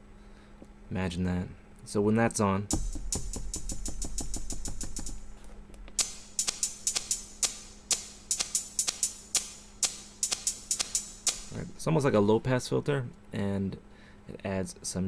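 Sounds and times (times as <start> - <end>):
low bass: 2.7 - 6.0
electronic drum hits: 2.7 - 11.6.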